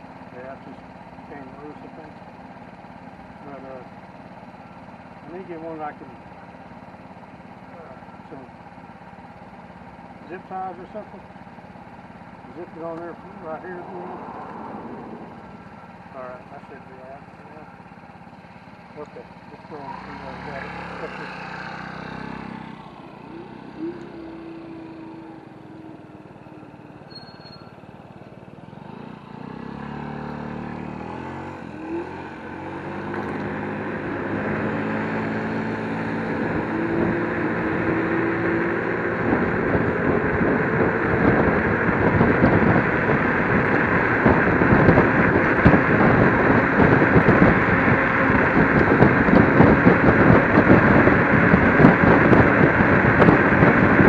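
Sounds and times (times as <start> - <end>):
scooter road noise: 0.0 - 54.0
wind on microphone: 39.2 - 54.0.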